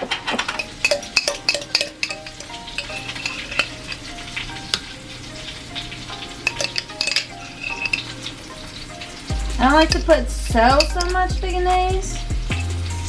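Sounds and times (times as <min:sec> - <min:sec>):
oil sizzling and crackling: 0:00.0 - 0:13.0
spoon clinking against bowl: 0:00.4 - 0:03.6, 0:09.9 - 0:11.2.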